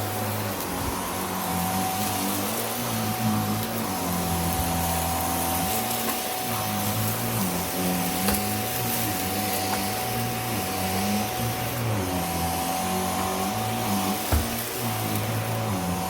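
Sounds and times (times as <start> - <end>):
vacuum cleaner running: 0.0 - 16.0
short thump: 14.3 - 14.6.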